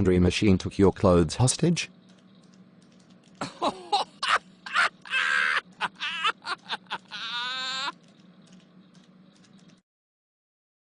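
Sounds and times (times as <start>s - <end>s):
faint steady hum: 0.0s - 9.8s
person making wordless vocal sounds: 7.0s - 8.0s.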